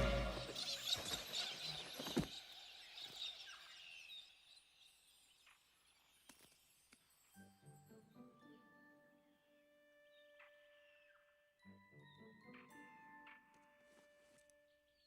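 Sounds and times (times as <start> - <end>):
soft music: 0.0 - 0.7, 7.1 - 15.0.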